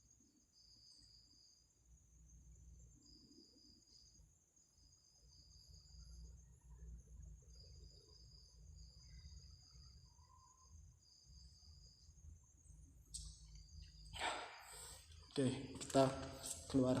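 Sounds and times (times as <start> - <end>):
high-pitched insect drone: 4.8 - 17.0.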